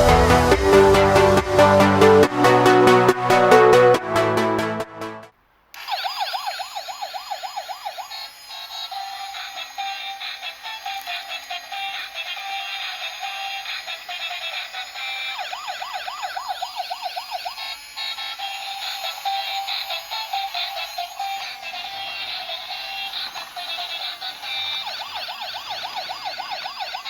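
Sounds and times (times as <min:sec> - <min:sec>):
loud music: 0:00.0 - 0:05.3
tinny electronic toy tune: 0:05.7 - 0:27.0
toy siren warbling: 0:05.8 - 0:27.0.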